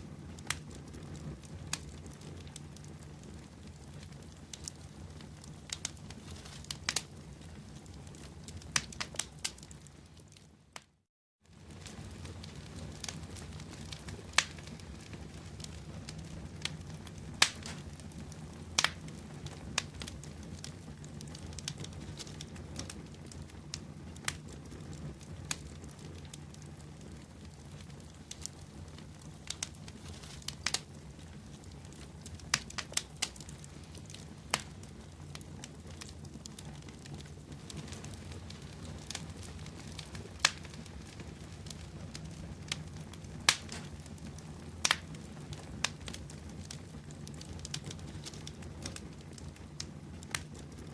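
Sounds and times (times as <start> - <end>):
bonfire crackling and popping: 0.0 - 50.9
low hum of burning fire: 0.0 - 50.9.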